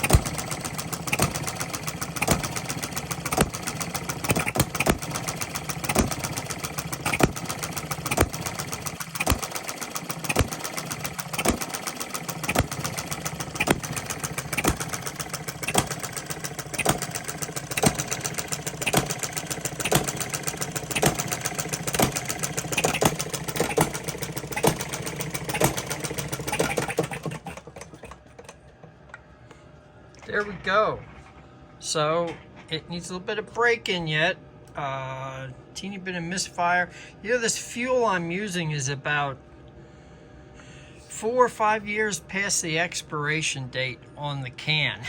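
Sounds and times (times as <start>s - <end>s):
small gasoline engine running: 0.0s - 28.7s.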